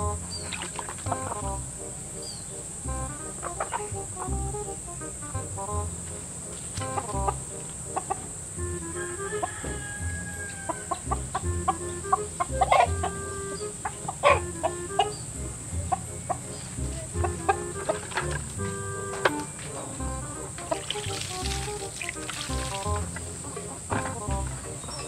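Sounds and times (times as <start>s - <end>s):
background music with low beat: 0.0s - 25.0s
chicken clucking: 3.3s - 4.3s, 9.0s - 25.0s.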